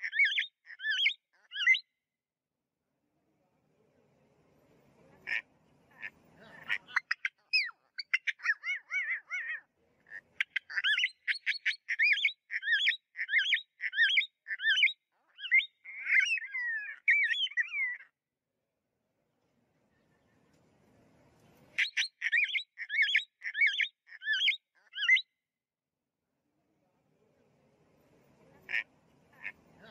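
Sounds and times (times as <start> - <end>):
songbird singing: 0.0 - 2.0, 5.3 - 18.1, 21.5 - 25.4.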